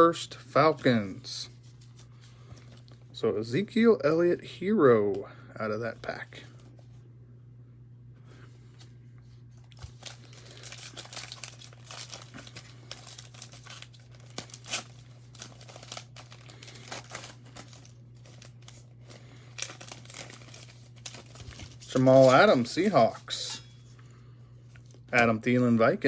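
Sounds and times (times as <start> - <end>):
steady low hum: 0.0 - 26.0
wrapper tearing and crinkling: 9.6 - 23.5.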